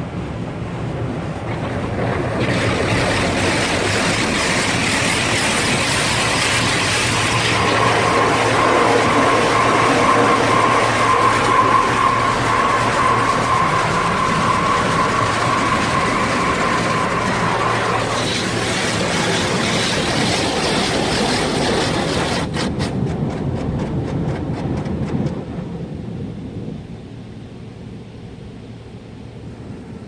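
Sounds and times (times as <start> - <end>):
car wash machinery rushing: 0.0 - 26.2
steady machine whine: 1.3 - 29.9
rapid clicks: 16.3 - 25.6.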